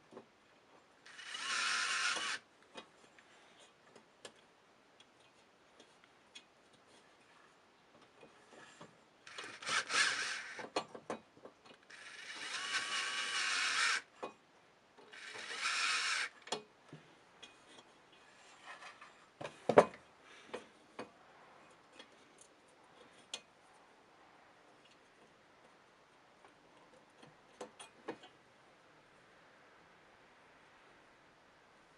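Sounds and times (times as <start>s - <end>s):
small power tool running: 1.1s - 2.4s, 9.3s - 10.6s, 11.9s - 14.1s, 15.2s - 16.4s.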